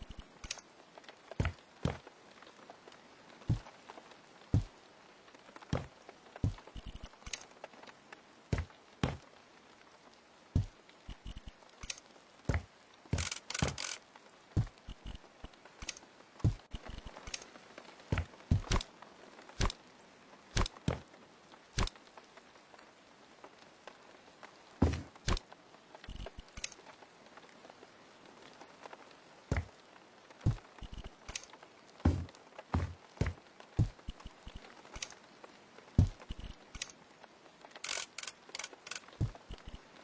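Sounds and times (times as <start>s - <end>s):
objects knocking and tapping: 32.1s - 34.6s.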